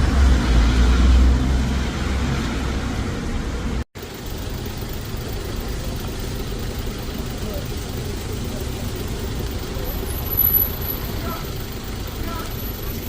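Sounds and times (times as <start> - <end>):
bus engine rumbling: 0.0 - 13.0
road traffic: 0.0 - 13.0.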